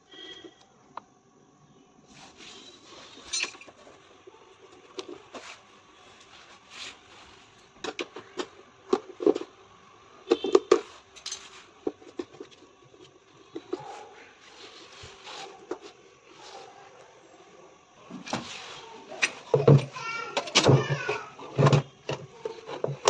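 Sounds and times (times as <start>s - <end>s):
metal tools clinking: 3.1s - 3.8s, 10.3s - 12.2s.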